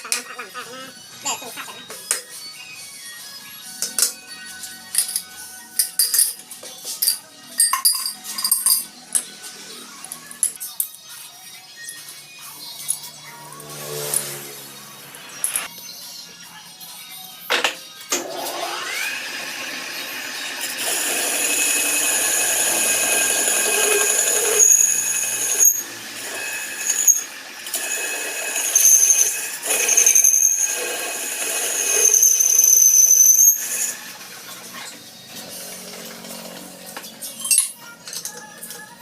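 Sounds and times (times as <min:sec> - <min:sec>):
high-pitched metal cutting screech: 0:13.0 - 0:15.7, 0:18.2 - 0:37.6
machine spinning up: 0:18.2 - 0:27.8.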